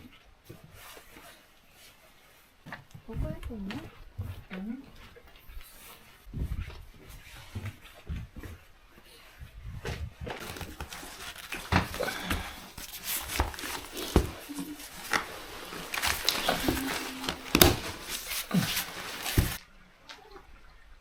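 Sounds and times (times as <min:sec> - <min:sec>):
rustling: 0:00.0 - 0:19.6
objects knocking and clattering: 0:10.4 - 0:19.6.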